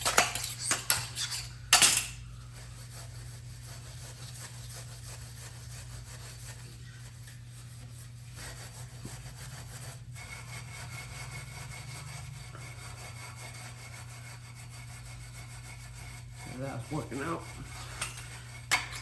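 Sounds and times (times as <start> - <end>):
scraper scraping paint off metal: 0.0 - 19.0
steady low hum: 0.0 - 19.0.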